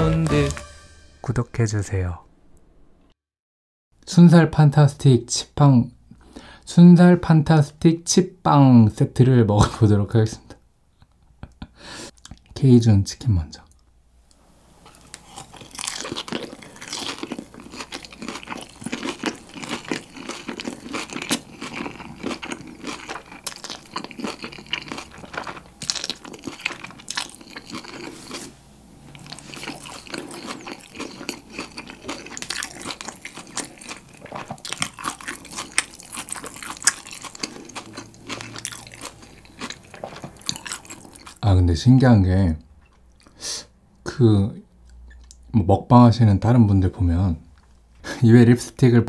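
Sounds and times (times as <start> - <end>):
crunching and chewing fried chicken: 14.9 - 41.4.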